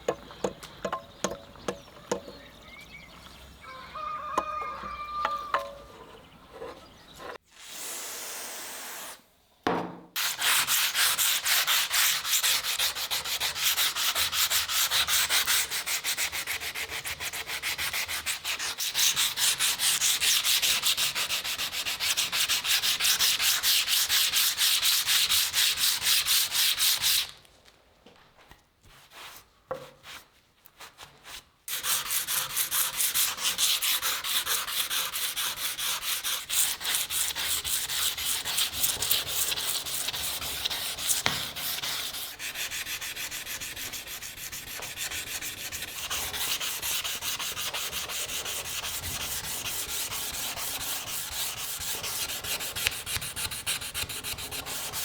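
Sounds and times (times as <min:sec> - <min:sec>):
hand sanding strokes: 0:10.2 - 0:27.4, 0:28.9 - 0:55.0.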